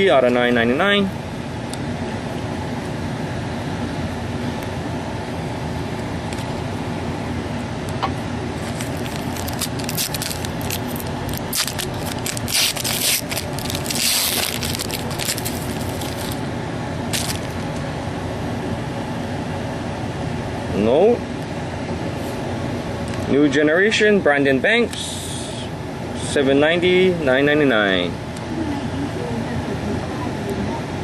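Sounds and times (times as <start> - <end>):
steady room hum: 0.0 - 31.0
trading cards shuffling: 8.6 - 16.4, 17.1 - 17.6.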